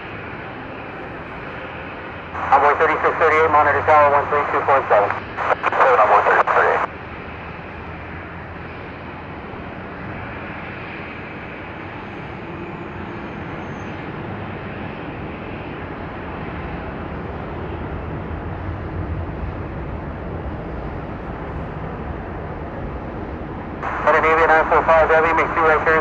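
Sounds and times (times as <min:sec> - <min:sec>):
jet engines rushing: 0:00.0 - 0:26.0
faint high whine: 0:02.3 - 0:06.9, 0:23.8 - 0:26.0.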